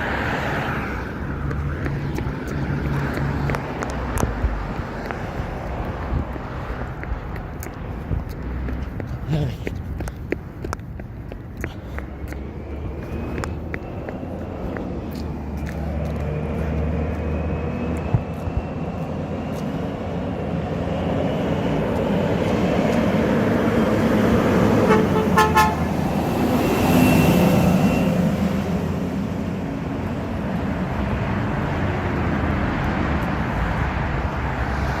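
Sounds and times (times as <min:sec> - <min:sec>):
truck horn toots: 0:24.8 - 0:26.0.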